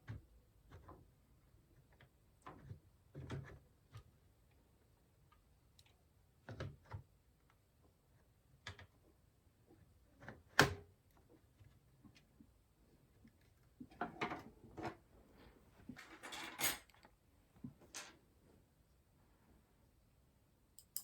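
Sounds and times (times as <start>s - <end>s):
computer parts clicking and knocking: 20.8s - 21.0s.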